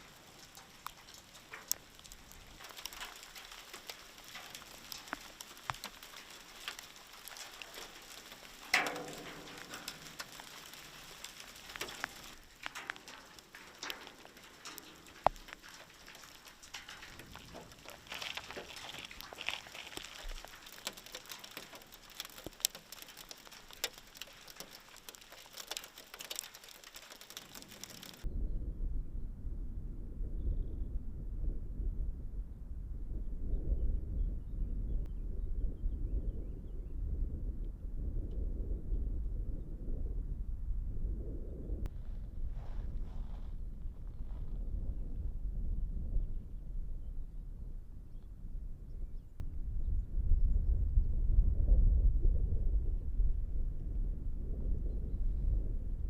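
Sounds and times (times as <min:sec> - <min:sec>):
small stones pattering down: 0:00.0 - 0:28.3, 0:41.9 - 0:45.2.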